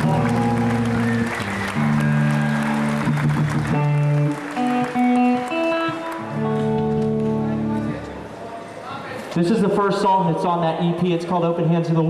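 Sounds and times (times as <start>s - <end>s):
crowd applause: 0.0s - 8.0s
amplified guitar chords: 0.0s - 8.3s.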